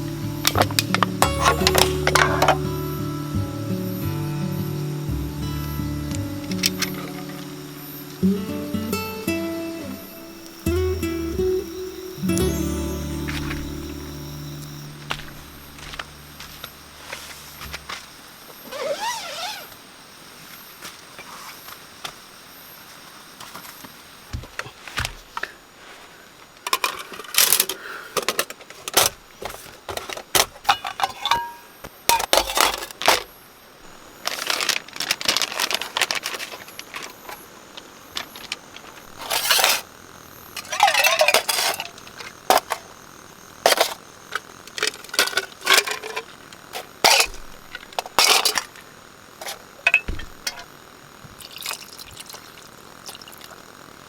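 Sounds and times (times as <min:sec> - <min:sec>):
metal objects clinking: 0:00.4 - 0:02.6, 0:30.0 - 0:33.3, 0:40.6 - 0:42.9, 0:43.6 - 0:48.8, 0:49.4 - 0:50.7.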